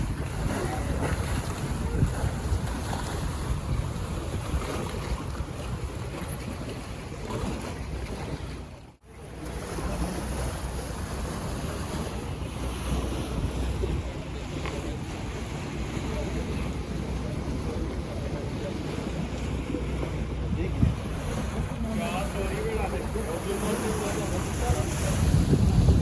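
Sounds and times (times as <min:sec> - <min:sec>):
wind buffeting microphone: 0:00.0 - 0:08.7, 0:09.6 - 0:26.0
water rushing past boat: 0:00.0 - 0:26.0.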